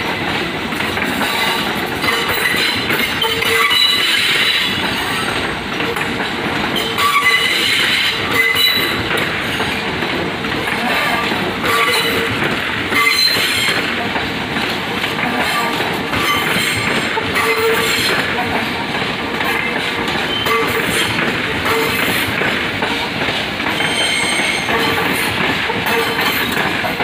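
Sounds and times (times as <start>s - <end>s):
train wheels rumbling on track: 0.0s - 27.0s
high-pitched wheel squeals: 23.8s - 25.0s.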